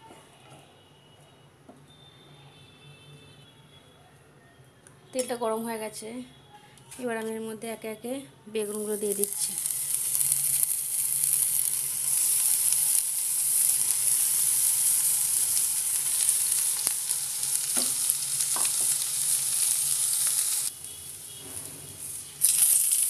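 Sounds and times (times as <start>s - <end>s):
eggplant sizzling in hot oil: 8.6s - 23.0s.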